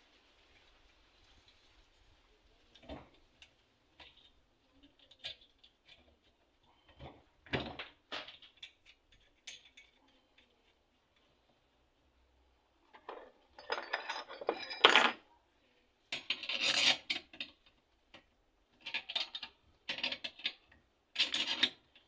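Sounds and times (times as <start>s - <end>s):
small parts clicking and knocking: 2.7s - 11.3s, 16.1s - 22.0s.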